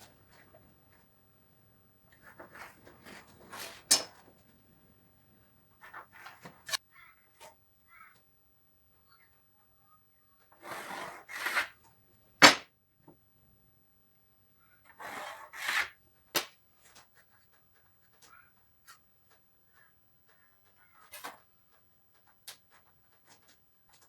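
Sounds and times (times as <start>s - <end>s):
rubbing or scraping strokes: 15.0s - 16.0s.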